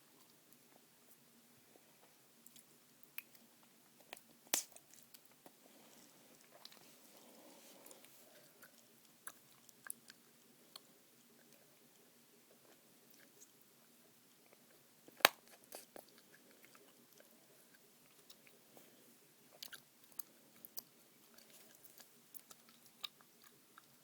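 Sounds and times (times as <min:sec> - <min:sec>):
gum snap pop: 0:04.5 - 0:04.8.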